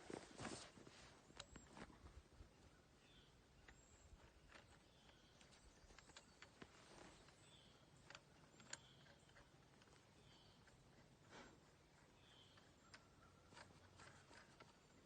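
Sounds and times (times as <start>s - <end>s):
small scattered clicks: 3.6s - 11.2s, 11.8s - 15.0s.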